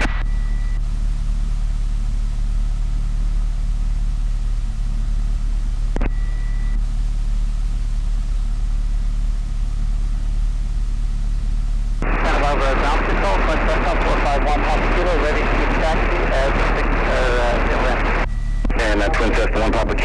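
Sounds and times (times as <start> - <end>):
aircraft engine idling: 8.8 - 20.0.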